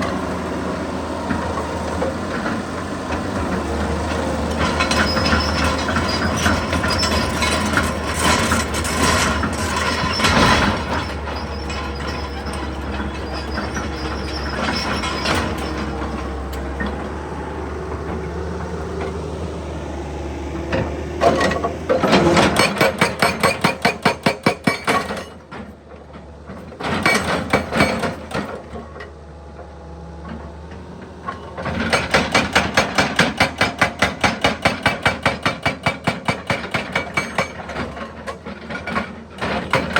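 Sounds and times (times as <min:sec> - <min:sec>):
excavator engine running: 0:00.0 - 0:39.9
hydraulic breaker hammering: 0:21.2 - 0:25.2, 0:31.8 - 0:38.0.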